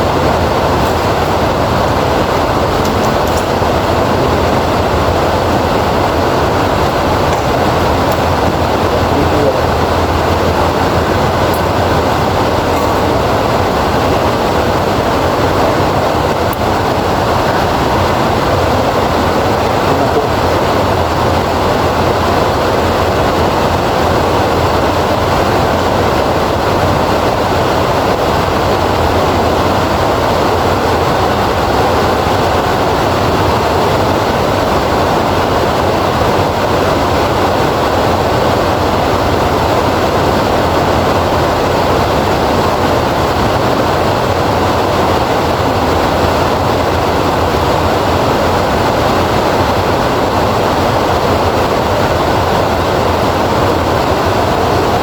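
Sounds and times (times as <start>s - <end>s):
heavy rainfall: 0.0s - 55.0s.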